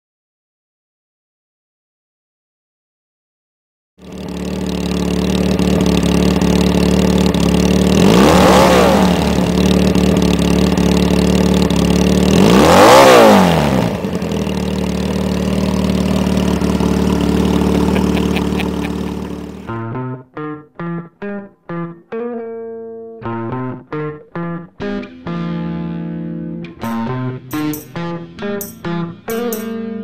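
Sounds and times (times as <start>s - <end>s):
motorcycle engine idling: 4.0s - 19.8s
motorcycles passing by: 4.1s - 19.8s.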